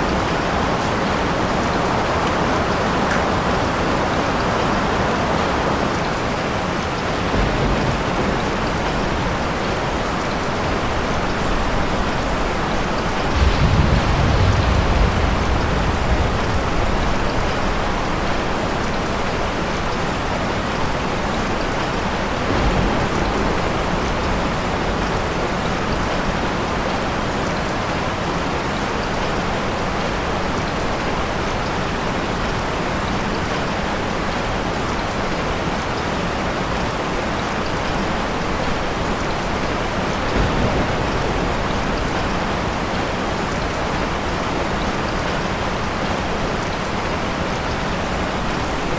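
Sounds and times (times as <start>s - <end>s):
low thunder rumbles: 0.0s - 20.2s, 20.8s - 27.3s, 37.8s - 48.9s
heavy rain falling: 0.0s - 48.9s.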